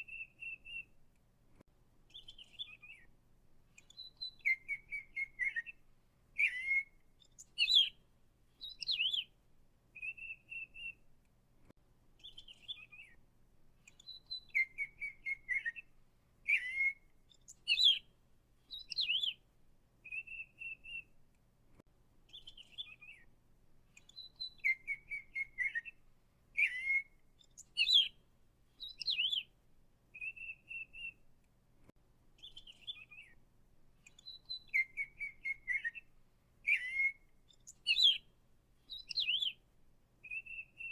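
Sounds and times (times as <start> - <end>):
songbird chirping and whistling: 0.0 - 1.0, 2.1 - 3.1, 3.7 - 9.4, 10.0 - 11.1, 12.2 - 13.2, 13.8 - 19.4, 20.0 - 21.2, 22.3 - 23.3, 23.9 - 31.2, 32.4 - 33.4, 34.0 - 39.6, 40.2 - 40.9.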